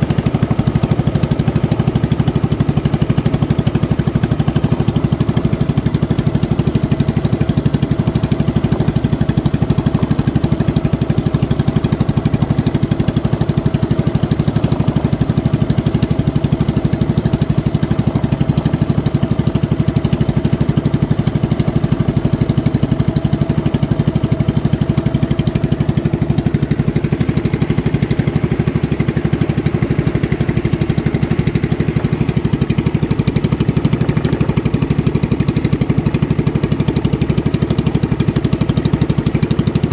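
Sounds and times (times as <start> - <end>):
small boat engine running: 0.0 - 39.9.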